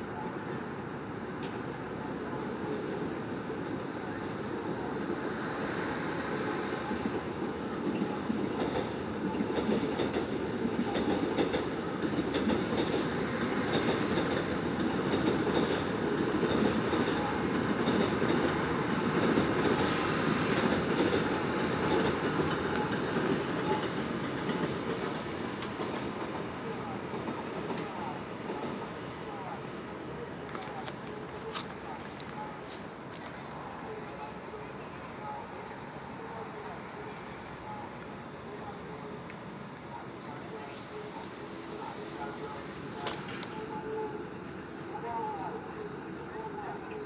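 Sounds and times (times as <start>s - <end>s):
train wheels clattering on rails: 2.5s - 34.0s.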